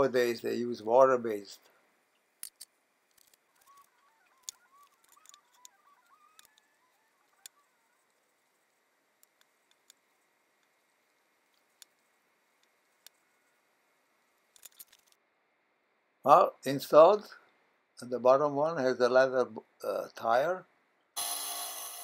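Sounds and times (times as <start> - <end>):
faint squeaky chirps: 3.4 - 8.3.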